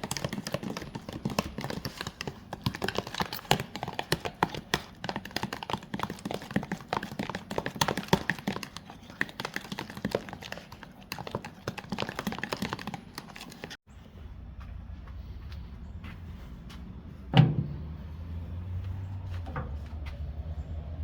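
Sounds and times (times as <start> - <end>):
rapid clicking and tapping: 0.0 - 13.8.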